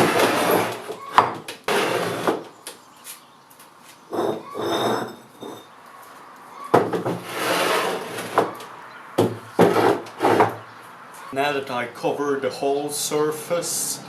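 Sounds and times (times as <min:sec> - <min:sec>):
concrete block scraping on wood: 0:00.0 - 0:01.0, 0:01.6 - 0:02.5, 0:04.1 - 0:05.7, 0:06.7 - 0:08.7, 0:09.6 - 0:10.7.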